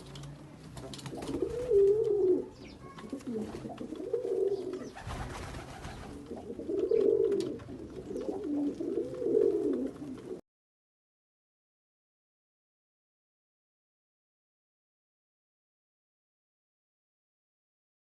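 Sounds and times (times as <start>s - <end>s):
pigeon cooing: 1.0s - 10.4s.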